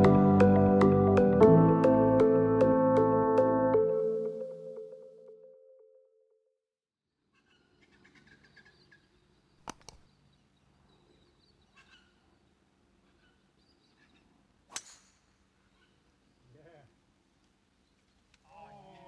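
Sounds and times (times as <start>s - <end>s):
small birds chirping: 15.6s - 16.9s.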